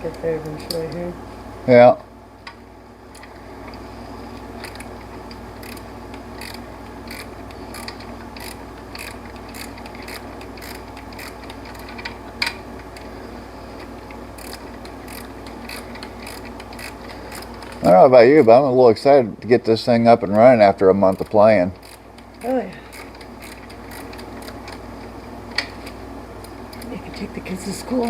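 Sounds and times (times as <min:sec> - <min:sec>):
socket ratchet clicking: 0:05.6 - 0:12.6, 0:14.4 - 0:17.8, 0:21.2 - 0:24.8.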